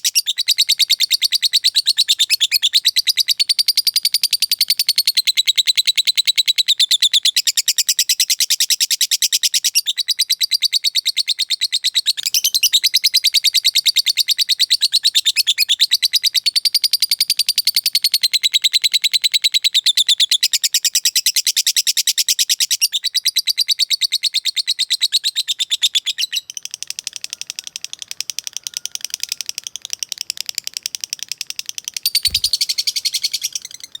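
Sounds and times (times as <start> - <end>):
lovebird chattering: 31.9 - 34.0.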